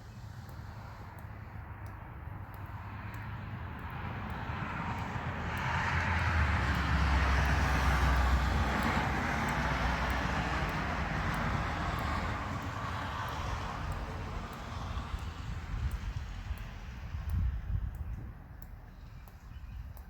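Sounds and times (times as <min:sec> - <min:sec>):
vehicle passing: 0:02.1 - 0:17.7.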